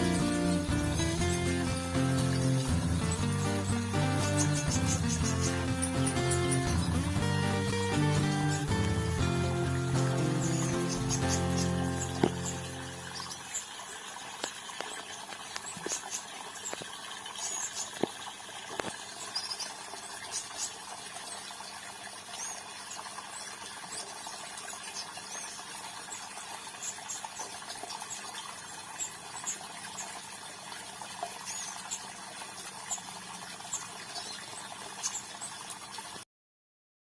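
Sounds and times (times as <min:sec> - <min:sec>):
high bird chirps: 0:00.0 - 0:13.7
fountain water splashing: 0:00.0 - 0:36.2.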